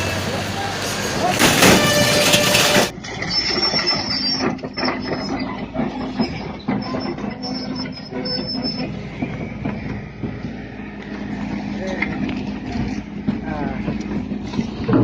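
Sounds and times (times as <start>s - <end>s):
heavy machinery humming: 0.0s - 15.0s
high metallic squeal: 1.2s - 11.0s.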